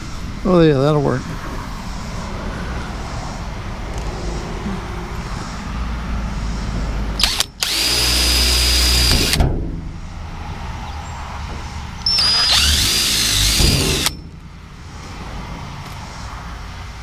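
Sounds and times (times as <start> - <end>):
steady low hum: 1.2 - 17.0
power drill whine: 7.2 - 9.4, 12.0 - 14.2.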